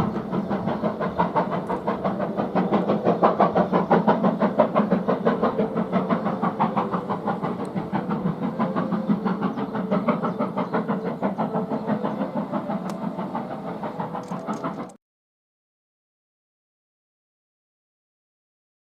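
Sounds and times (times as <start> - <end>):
steam locomotive exhaust beats: 0.0 - 15.0.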